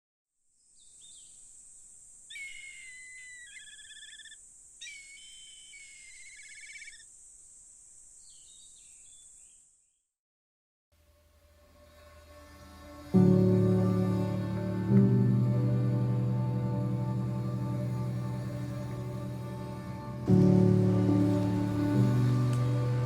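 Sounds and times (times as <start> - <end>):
high-pitched insect drone: 1.0 - 9.6
songbird singing with trill: 2.3 - 7.0, 8.2 - 9.6.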